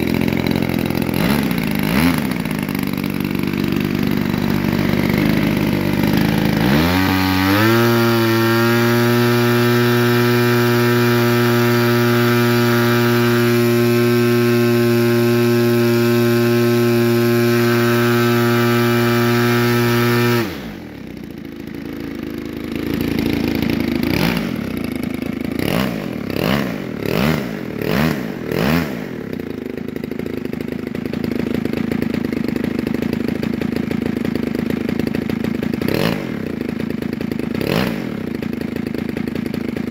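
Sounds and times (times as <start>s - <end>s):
model engine with propeller: 0.0s - 39.9s.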